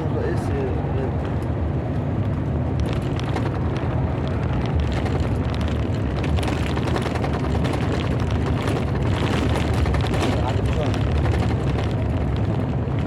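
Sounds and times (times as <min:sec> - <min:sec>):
thunder rumbling: 0:01.1 - 0:13.0.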